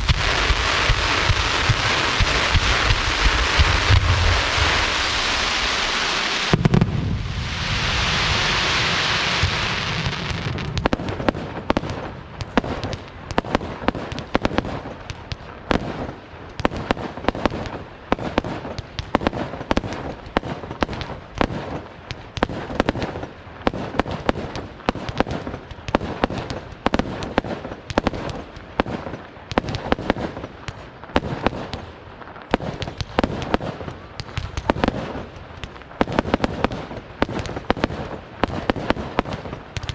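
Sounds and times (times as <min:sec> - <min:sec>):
firework boom: 0:00.0 - 0:10.9
firework bangs and cracks: 0:00.0 - 0:39.9.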